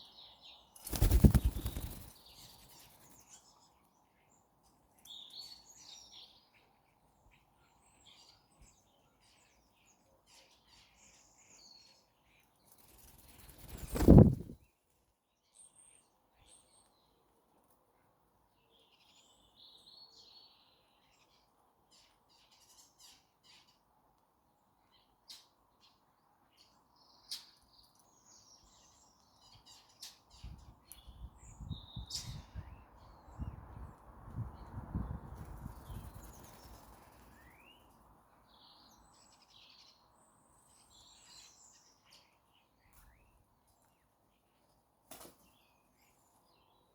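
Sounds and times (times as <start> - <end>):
birds chirping: 0.8 - 3.2.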